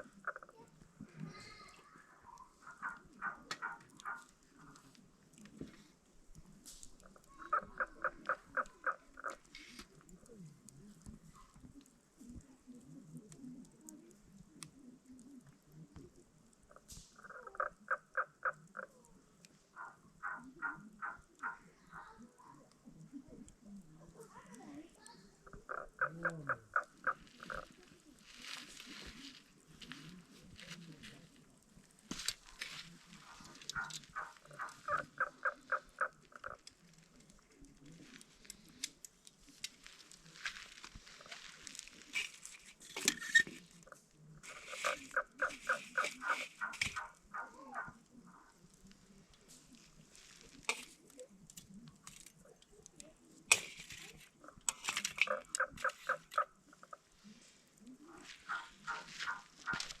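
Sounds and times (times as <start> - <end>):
sharp crackles: 0.0 - 60.0
animal calling rapid notes: 33.3 - 36.6.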